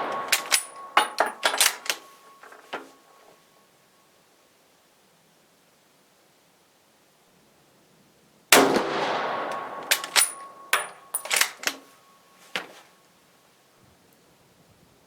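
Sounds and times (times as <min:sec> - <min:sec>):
rifle shot with echo: 0:00.0 - 0:02.4, 0:08.5 - 0:11.7
rifle bolt clacking: 0:00.0 - 0:03.0, 0:09.5 - 0:11.8.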